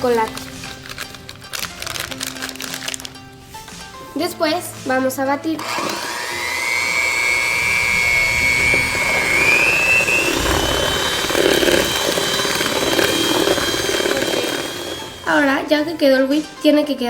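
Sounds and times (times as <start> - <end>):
electric hand mixer whining: 5.5 - 16.0.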